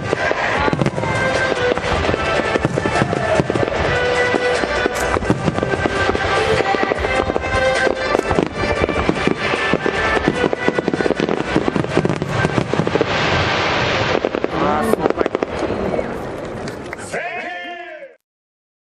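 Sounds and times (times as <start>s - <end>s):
music playing: 0.0s - 15.0s
fireworks bangs and crackles: 0.0s - 17.1s.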